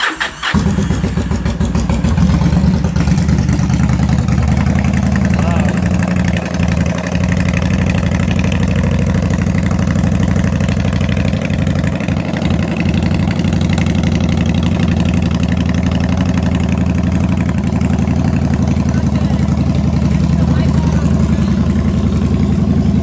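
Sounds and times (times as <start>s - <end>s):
motorcycle engine idling: 0.4s - 23.0s.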